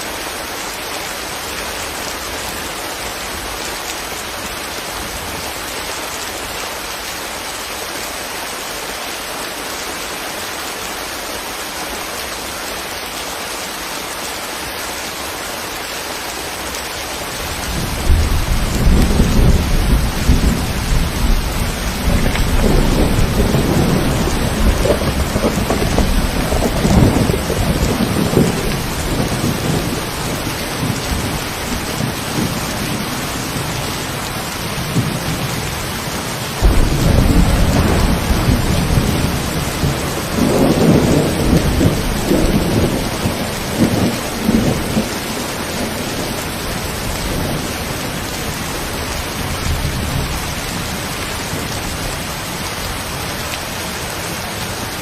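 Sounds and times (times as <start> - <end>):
steady rain falling: 0.0 - 55.0
thunder rumbling: 17.4 - 36.0, 36.6 - 52.7.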